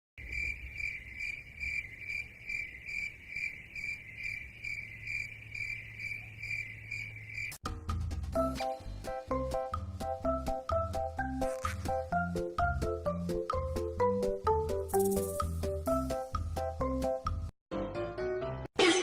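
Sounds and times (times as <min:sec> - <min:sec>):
cricket chirping: 0:00.2 - 0:07.6
music: 0:07.6 - 0:19.0.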